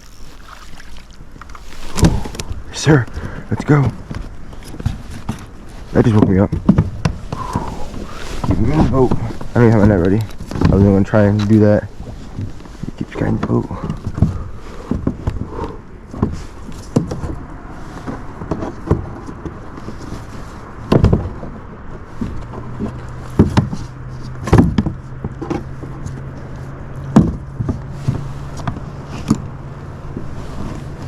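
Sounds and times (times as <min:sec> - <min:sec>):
steady low hum: 0:00.0 - 0:03.2, 0:07.2 - 0:13.7.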